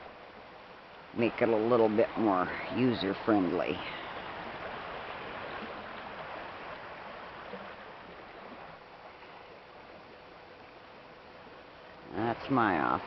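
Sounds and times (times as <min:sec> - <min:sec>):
fast river rushing: 0:00.0 - 0:09.9.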